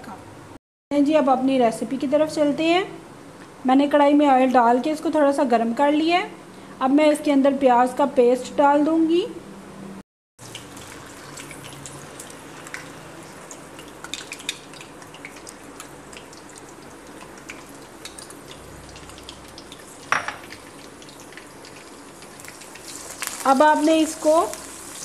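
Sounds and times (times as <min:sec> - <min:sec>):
oil popping and crackling: 0:10.4 - 0:25.0
paste sizzling in hot oil: 0:10.4 - 0:25.0.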